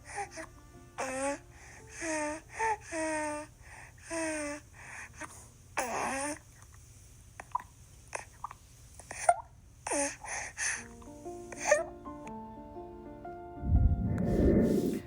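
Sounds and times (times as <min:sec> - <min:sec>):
baby whimpering: 0:05.8 - 0:06.4.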